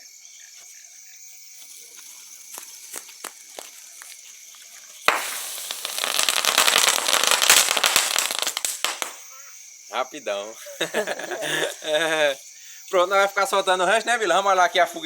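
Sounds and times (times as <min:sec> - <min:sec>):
insects chirring: 0:00.0 - 0:15.0
faint scattered crackles: 0:00.6 - 0:09.5
firework crackling pops: 0:04.8 - 0:09.3.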